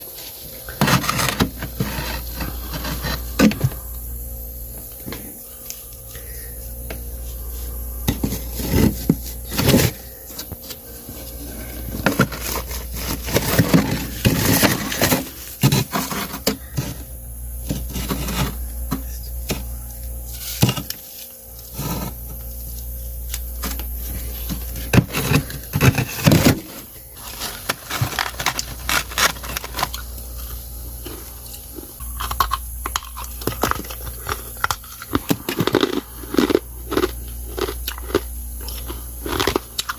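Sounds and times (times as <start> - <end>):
steady low hum: 0.0 - 39.9
ice scraping: 0.5 - 3.6, 11.2 - 16.5
ice cracking and crunching: 24.8 - 30.3, 31.0 - 39.9.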